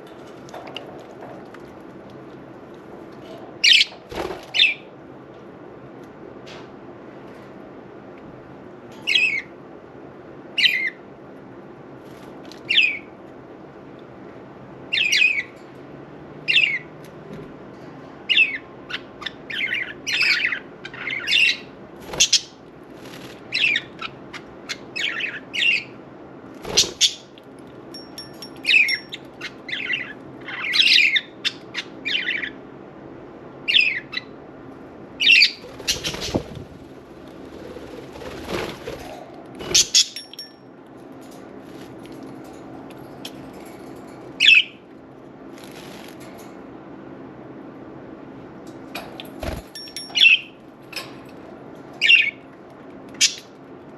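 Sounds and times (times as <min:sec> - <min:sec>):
budgerigars chirping and squawking: 0:18.3 - 0:22.5, 0:26.7 - 0:27.3, 0:35.2 - 0:36.6, 0:39.6 - 0:40.2.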